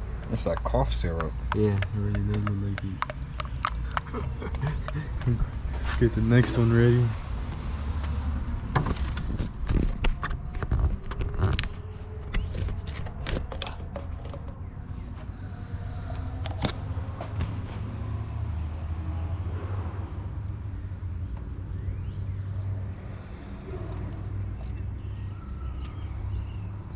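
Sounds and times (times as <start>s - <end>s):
plastic bottle clicking and crackling: 0.3s - 5.0s.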